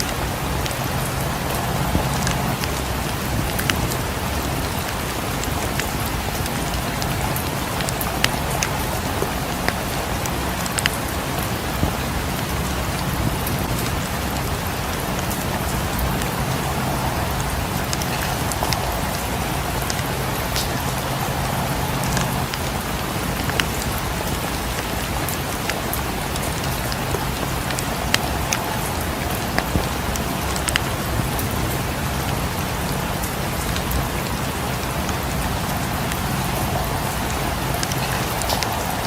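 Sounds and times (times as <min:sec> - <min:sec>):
steady rain: 0:00.0 - 0:39.0
wood fire crackling: 0:00.0 - 0:39.0.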